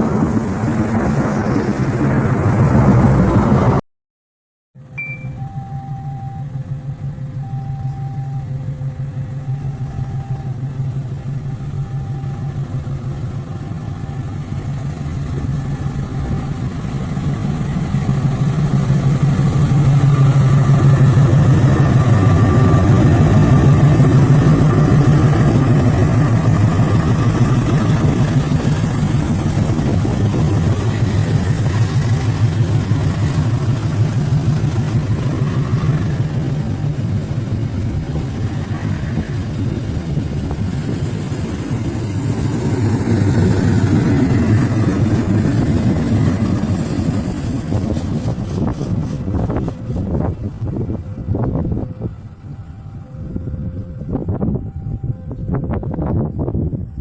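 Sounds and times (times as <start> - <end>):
two-note tone: 4.9 - 13.2, 50.5 - 57.0
locomotive engine running: 5.0 - 57.0.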